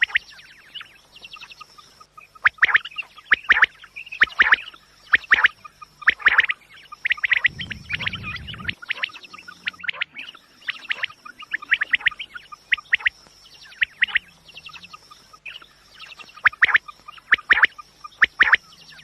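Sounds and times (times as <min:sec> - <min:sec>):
quail chirping: 0:02.5 - 0:19.0
faint high tone: 0:07.5 - 0:08.8.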